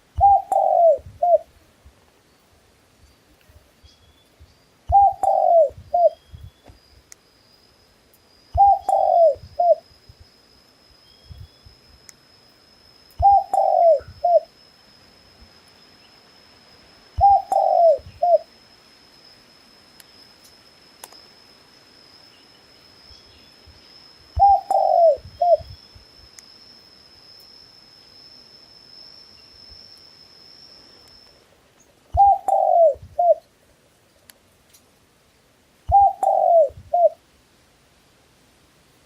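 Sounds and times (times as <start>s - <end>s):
faint high whine: 0.0s - 39.0s
dove cooing: 0.2s - 1.5s, 4.9s - 6.2s, 8.6s - 9.8s, 13.2s - 14.5s, 17.2s - 18.5s, 24.4s - 25.7s, 32.1s - 33.5s, 35.9s - 37.2s.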